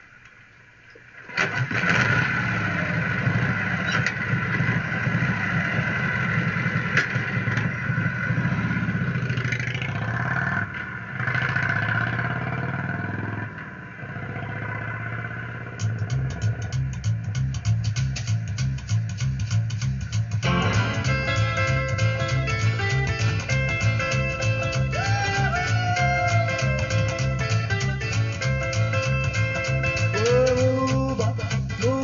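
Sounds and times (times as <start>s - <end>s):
motorcycle engine revving: 1.3s - 32.0s
band with guitar and bass: 15.8s - 32.0s.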